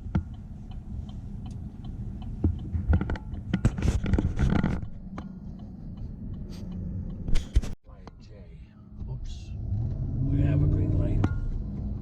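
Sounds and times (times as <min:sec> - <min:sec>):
low vehicle cab rumble: 0:00.0 - 0:12.0
rustling crinkling noise: 0:02.7 - 0:06.2.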